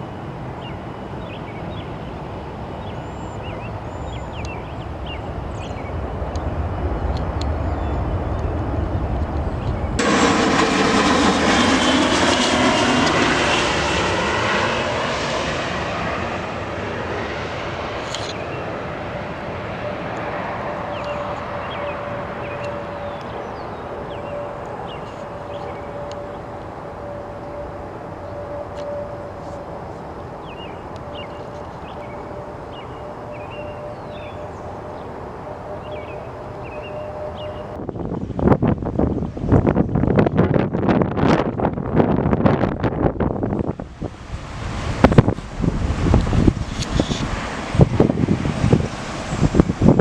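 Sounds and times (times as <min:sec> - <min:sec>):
jet airliner passing: 0:00.0 - 0:50.0.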